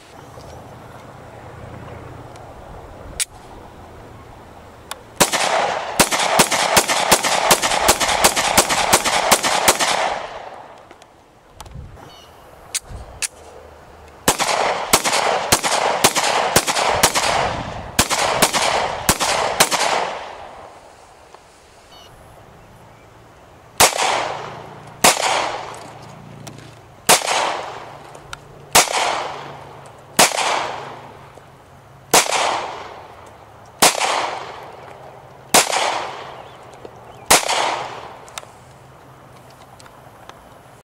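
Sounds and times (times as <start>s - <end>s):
gunshots with long echo: 5.2s - 10.8s, 14.2s - 20.9s, 23.8s - 25.8s, 27.1s - 28.0s, 28.7s - 31.2s, 32.1s - 33.1s, 33.8s - 34.8s, 35.5s - 36.5s, 37.3s - 38.2s.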